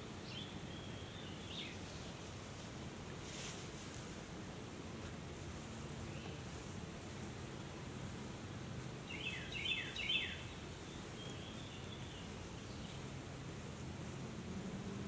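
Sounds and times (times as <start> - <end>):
songbird singing: 0.0 - 2.4, 5.9 - 6.7, 8.8 - 13.4
steady low background noise: 0.0 - 15.0.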